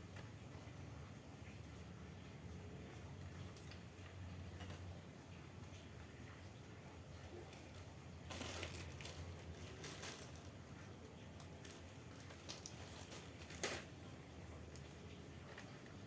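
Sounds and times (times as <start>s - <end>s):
rustling and crackling: 7.1s - 16.0s.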